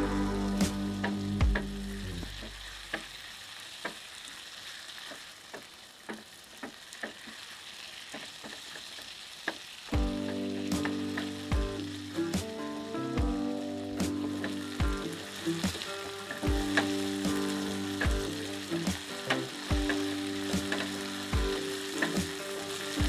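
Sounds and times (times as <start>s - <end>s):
background music: 0.0s - 2.9s, 10.0s - 23.0s
okra sizzling in a pan: 0.0s - 23.0s
spatula tapping and scraping pan: 5.0s - 12.5s, 14.4s - 23.0s.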